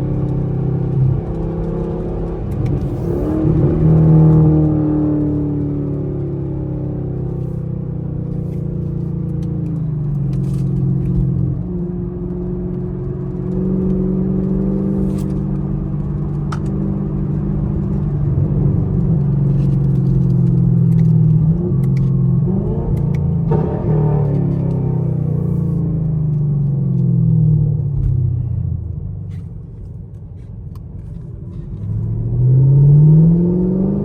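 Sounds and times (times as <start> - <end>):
car engine exhaust while driving: 0.0 - 34.0.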